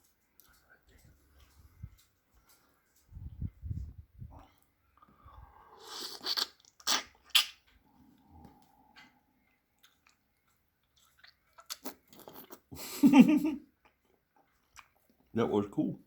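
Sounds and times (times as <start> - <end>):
faint chewing with clicks: 0.0 - 3.1, 6.0 - 12.7, 13.6 - 15.4
person slurping oyster: 5.3 - 7.6, 11.7 - 12.7
wet mouth smacks: 5.8 - 7.7.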